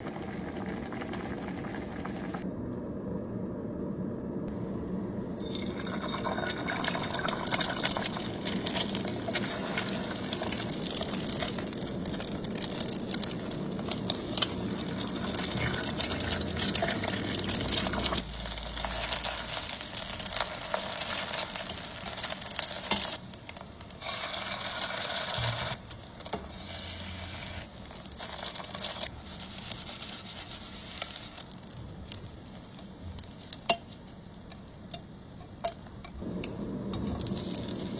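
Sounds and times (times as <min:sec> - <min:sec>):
noodles sizzling in a pot: 0:00.0 - 0:02.4, 0:05.4 - 0:37.9
utensils clicking against pot: 0:07.2 - 0:26.5, 0:32.6 - 0:37.9
low rumbling: 0:10.0 - 0:20.3.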